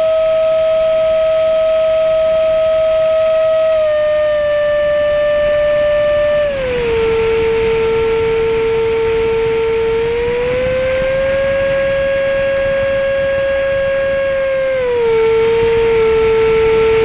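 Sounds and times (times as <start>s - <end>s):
electric fan motor whine: 0.0s - 17.0s.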